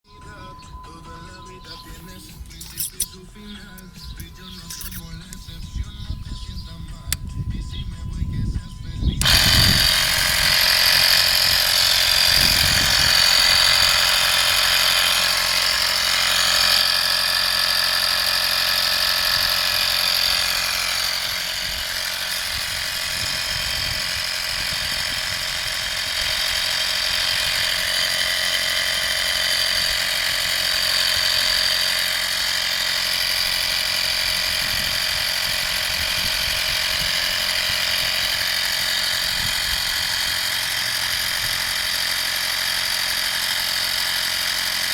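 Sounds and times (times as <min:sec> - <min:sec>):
high-pitched whine: 0:00.1 - 0:32.0
air compressor running: 0:01.6 - 0:44.9.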